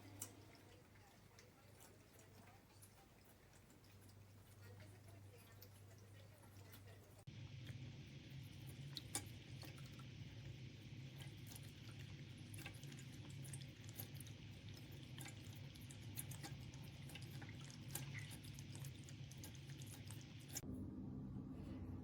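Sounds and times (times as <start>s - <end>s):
water trickling and dripping: 0.0s - 20.6s
low pump hum: 0.0s - 22.0s.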